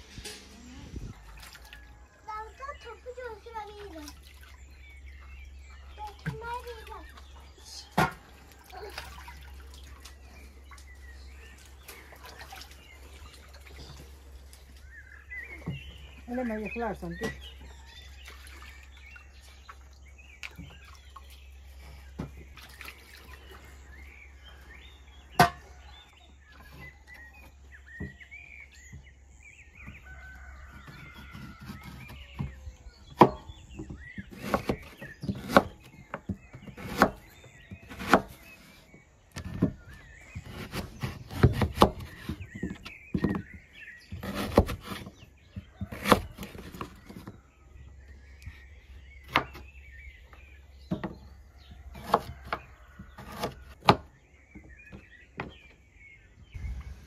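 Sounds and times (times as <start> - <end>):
small birds calling: 0.0 - 57.0
cleaver chopping on wooden board: 25.4 - 25.6, 30.7 - 38.4, 40.4 - 45.1, 49.2 - 49.6, 51.9 - 55.6.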